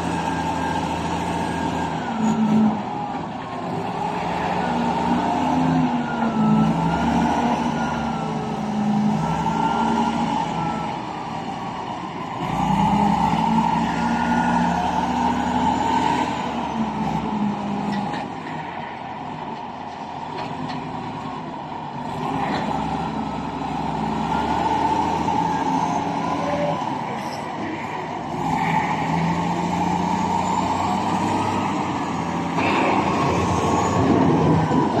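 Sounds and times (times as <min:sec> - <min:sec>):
heavy truck engines running: 0:00.0 - 0:35.0.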